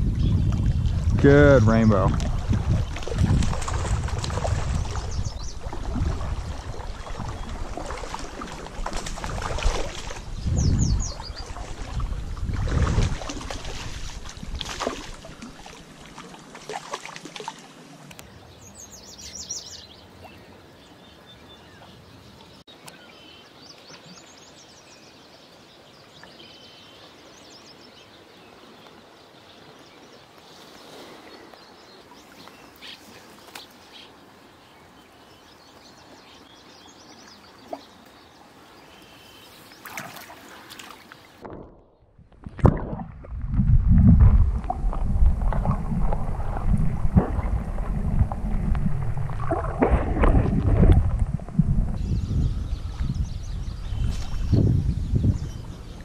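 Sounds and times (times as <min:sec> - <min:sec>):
small birds chirping: 0:10.0 - 0:11.8, 0:18.1 - 0:41.3, 0:52.0 - 0:56.0
low rumbling noise: 0:41.5 - 0:56.0.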